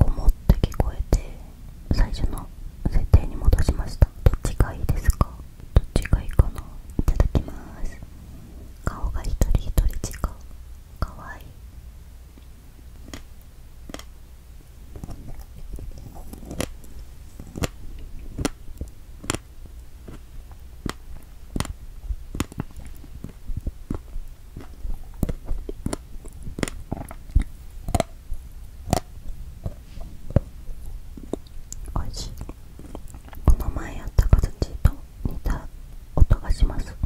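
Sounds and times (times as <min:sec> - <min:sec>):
wet chewing mouth sounds: 0:13.0 - 0:13.3, 0:13.9 - 0:14.1, 0:14.9 - 0:34.6.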